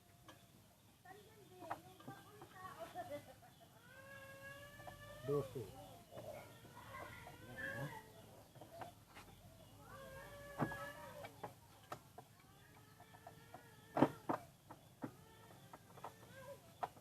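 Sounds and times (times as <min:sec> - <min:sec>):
chickens clucking: 0:00.2 - 0:17.0.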